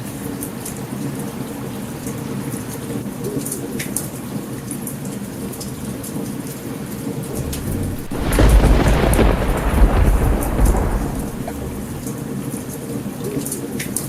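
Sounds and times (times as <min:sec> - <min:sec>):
steady rain: 0:00.0 - 0:13.2
thunder rumbling: 0:07.2 - 0:12.2.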